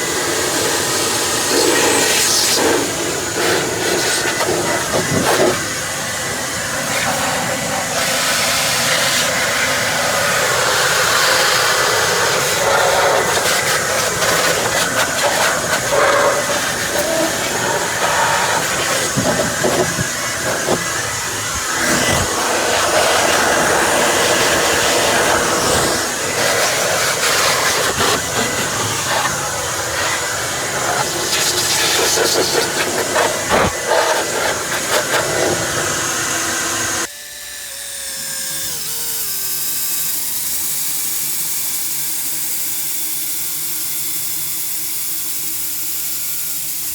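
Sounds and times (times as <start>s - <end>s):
loud rushing hiss: 0.0s - 37.1s.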